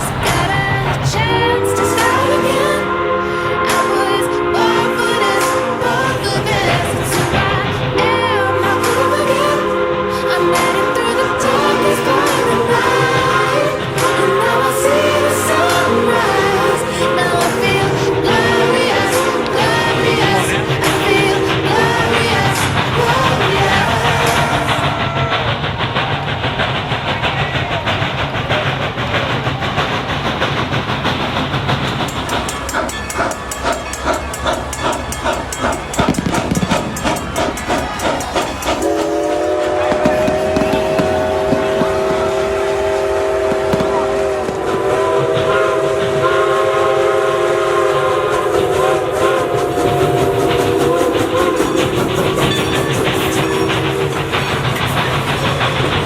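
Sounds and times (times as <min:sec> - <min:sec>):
train rumbling and clattering on rails: 0:00.0 - 0:56.0.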